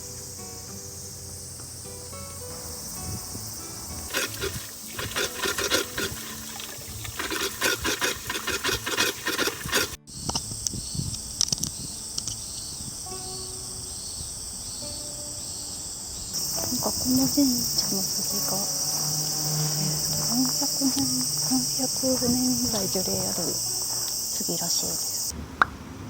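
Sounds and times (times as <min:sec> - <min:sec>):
insects chirring: 0:00.0 - 0:25.4
scraping and crunching noises: 0:04.0 - 0:10.5.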